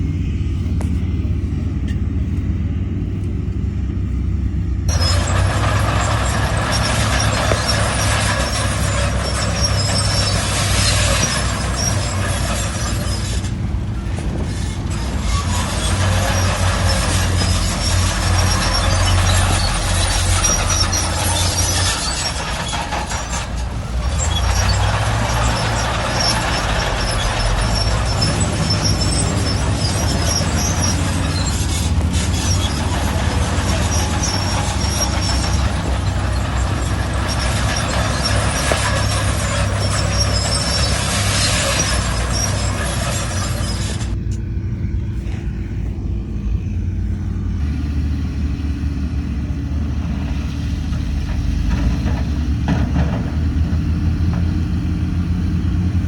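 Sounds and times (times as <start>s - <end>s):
diesel engine hum: 0.0s - 56.0s
high squeaks: 4.9s - 44.2s.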